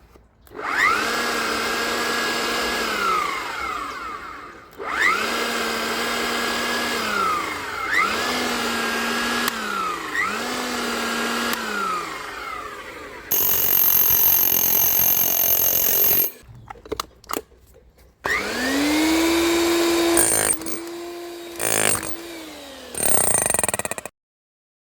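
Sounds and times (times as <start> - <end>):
rotary hammer motor running: 0.5 - 16.4, 18.3 - 24.1.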